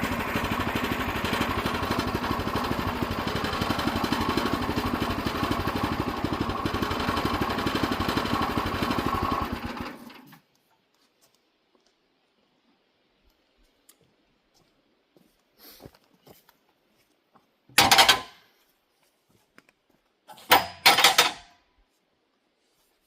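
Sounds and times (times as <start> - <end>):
small gasoline engine idling: 0.0 - 10.4.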